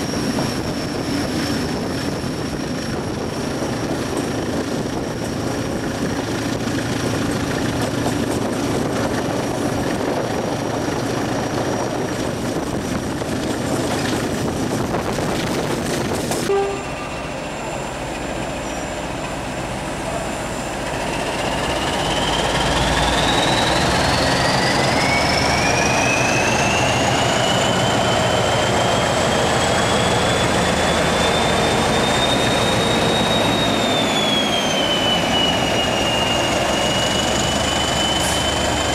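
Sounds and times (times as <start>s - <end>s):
train rumbling on rails: 0.0s - 38.9s
train whine rising in pitch: 16.4s - 38.9s.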